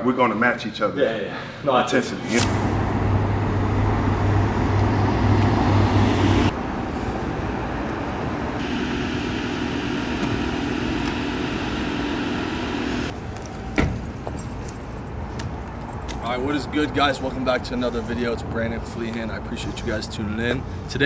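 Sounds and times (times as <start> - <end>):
sharp thump: 2.2 - 3.5.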